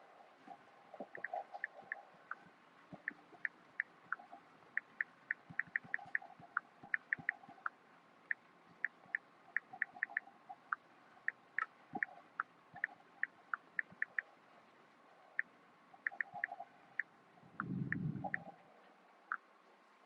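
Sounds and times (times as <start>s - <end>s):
water dripping: 0.9s - 7.7s, 8.3s - 14.3s, 15.4s - 18.5s.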